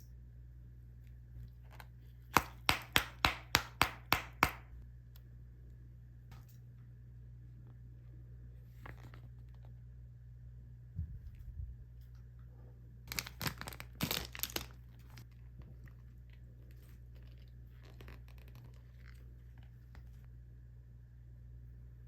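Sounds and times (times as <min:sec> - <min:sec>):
crunchy chewing: 0:13.1 - 0:20.3.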